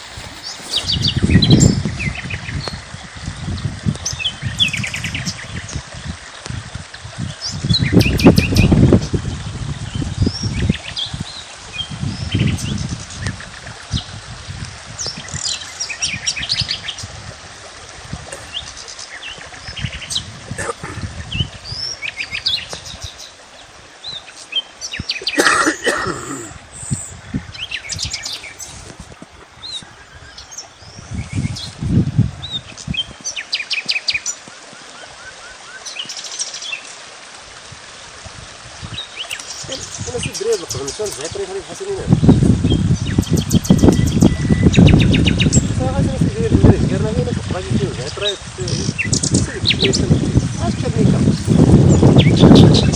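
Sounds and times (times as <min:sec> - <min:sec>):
steady outdoor hiss: 0:00.0 - 0:52.9
wild birds chirping and calling: 0:18.3 - 0:31.8, 0:38.8 - 0:45.7, 0:47.8 - 0:52.9.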